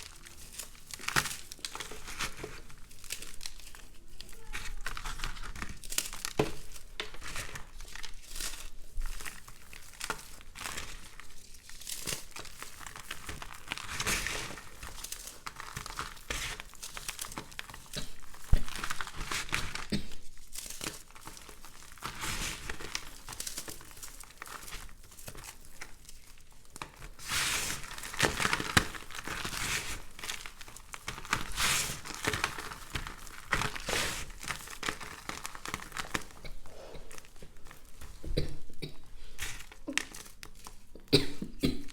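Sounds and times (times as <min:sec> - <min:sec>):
brittle soap crackling when crushed: 0:00.0 - 0:41.2.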